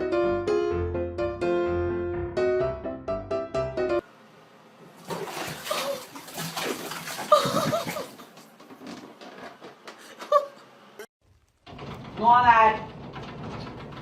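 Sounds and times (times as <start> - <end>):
water splashing and running: 4.9 - 8.5.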